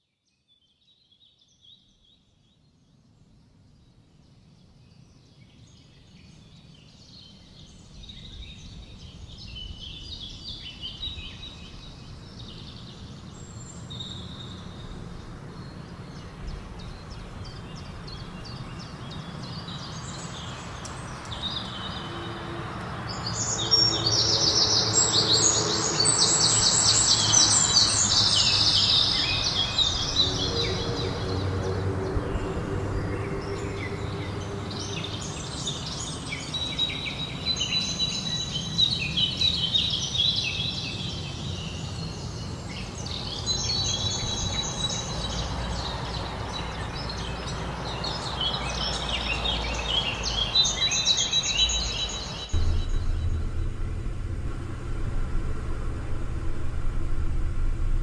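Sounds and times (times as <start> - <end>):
low rumble: 52.6 - 58.0.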